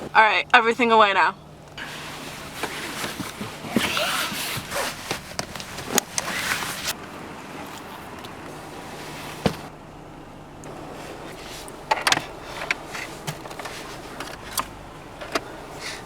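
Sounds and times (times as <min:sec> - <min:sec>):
car engine and road hum: 0:00.0 - 0:16.0
knocks and clicks in car: 0:11.8 - 0:15.5.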